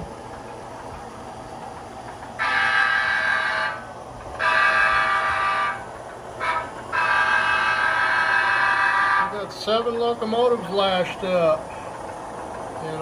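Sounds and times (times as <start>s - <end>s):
train running rumble: 0.0s - 13.0s
locomotive horn blasts: 2.4s - 5.8s, 6.4s - 9.3s.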